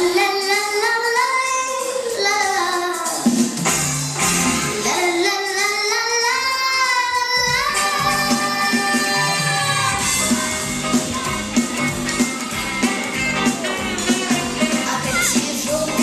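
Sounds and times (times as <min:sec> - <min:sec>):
child singing: 0:00.0 - 0:03.3, 0:04.8 - 0:11.8, 0:14.0 - 0:16.0
backing track: 0:00.0 - 0:16.0.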